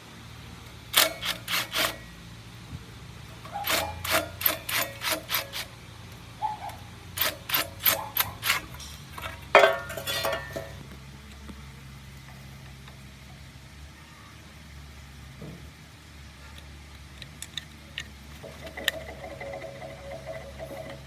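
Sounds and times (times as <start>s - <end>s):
steady low hum: 0.0s - 21.0s
hand tool scraping: 0.9s - 2.2s, 3.3s - 5.8s, 6.4s - 10.8s, 18.3s - 21.0s.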